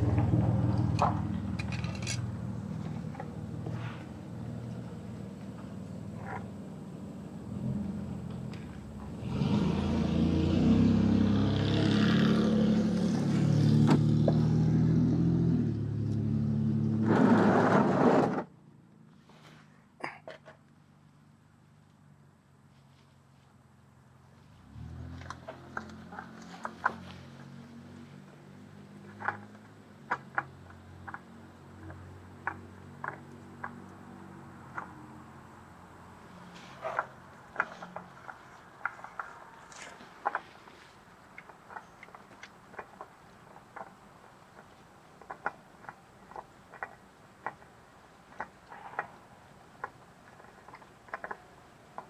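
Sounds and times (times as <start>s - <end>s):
tools clicking and knocking: 0.8s - 2.3s.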